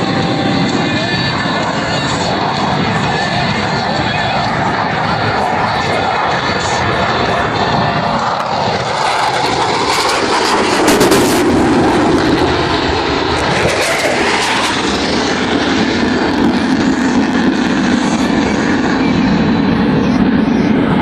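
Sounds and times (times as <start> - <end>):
jet flying overhead: 0.0 - 21.0.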